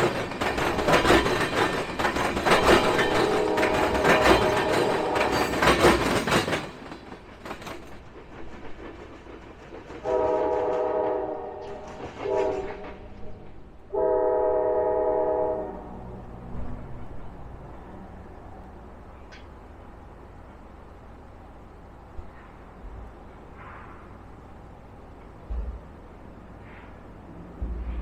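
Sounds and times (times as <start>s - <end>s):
train rumbling and rattling: 0.0s - 28.0s
locomotive horn blasts: 3.3s - 5.5s, 10.1s - 12.8s, 13.9s - 16.0s.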